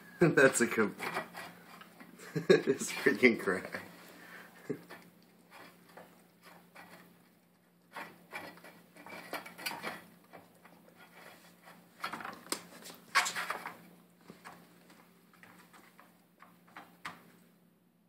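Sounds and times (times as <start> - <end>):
puppy crunching food: 2.8 - 17.5.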